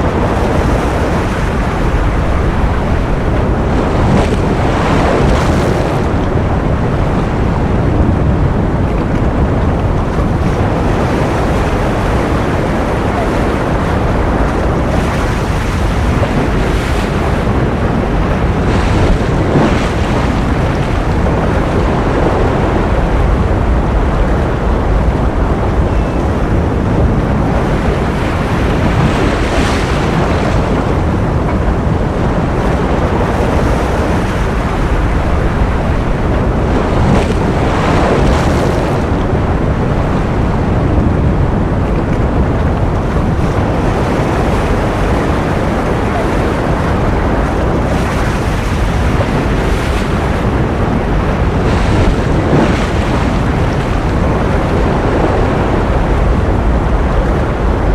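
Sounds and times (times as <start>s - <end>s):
ocean surf: 0.0s - 57.9s.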